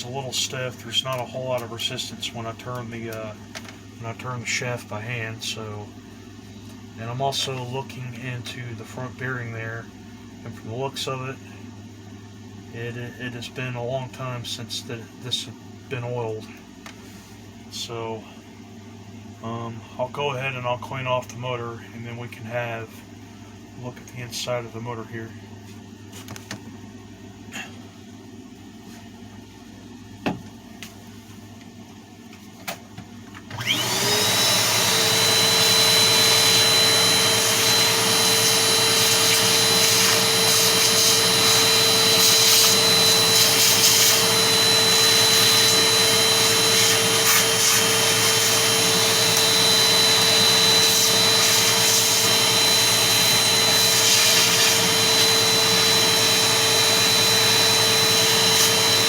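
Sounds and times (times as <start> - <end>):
vacuum cleaner running: 33.4 - 59.0.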